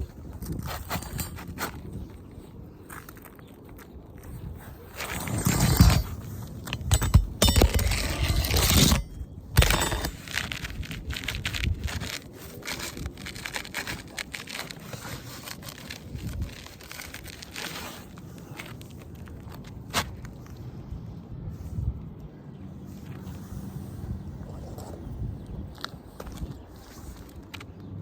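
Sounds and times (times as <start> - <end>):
roof shingles scraping: 4.9 - 9.0, 9.6 - 20.3.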